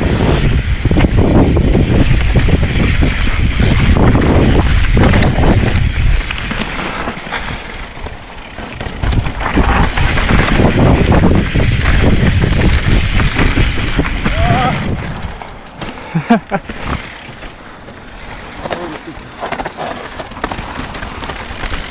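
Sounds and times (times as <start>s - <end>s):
wind buffeting microphone: 0.0s - 15.8s
bike rattling and knocking: 0.3s - 21.9s
tyres on dirt and rock: 0.5s - 21.9s.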